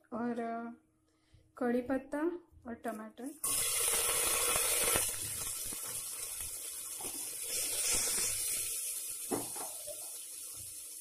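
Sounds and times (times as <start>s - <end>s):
food sizzling in hot oil: 3.4s - 11.0s.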